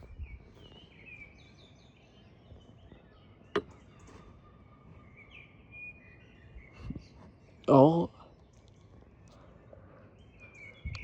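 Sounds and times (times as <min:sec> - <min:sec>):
bird chirps and whistled calls: 0:00.0 - 0:07.6, 0:10.2 - 0:11.0.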